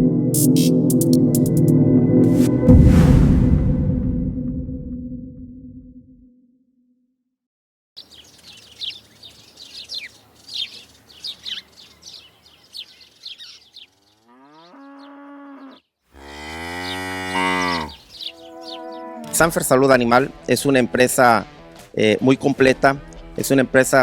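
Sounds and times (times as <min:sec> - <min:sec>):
steady outdoor hiss: 0:08.0 - 0:14.2
small birds chirping: 0:08.0 - 0:19.3
cattle mooing: 0:13.9 - 0:19.5.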